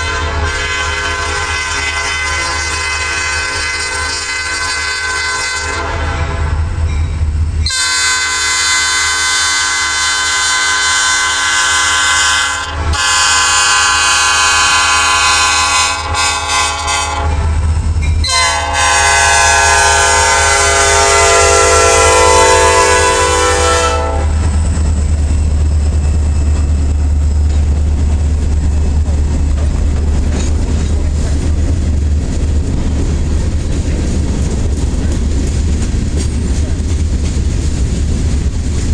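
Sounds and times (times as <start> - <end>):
locomotive horn blasts: 0.0 - 6.7, 7.6 - 24.5
diesel engine and rolling train rumble: 0.0 - 38.9.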